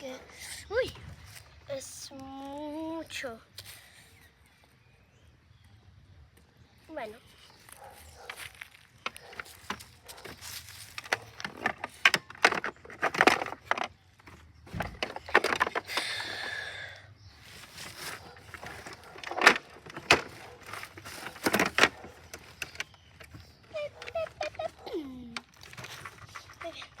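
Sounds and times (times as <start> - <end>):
scraping rustle: 7.5 - 15.9, 17.4 - 27.0
toys clicking and knocking: 9.0 - 16.4, 18.5 - 27.0.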